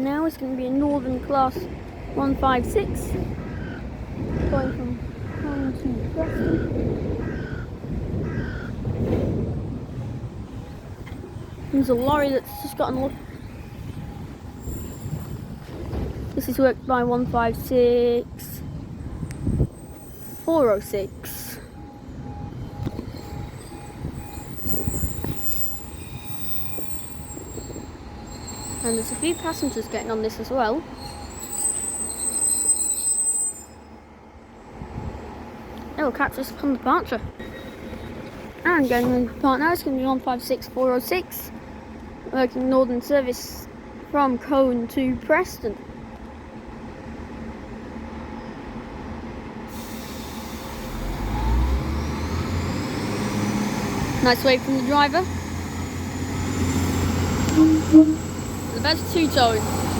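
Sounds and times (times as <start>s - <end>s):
diesel train low rumble: 0.0s - 59.9s
hiss: 49.7s - 51.1s.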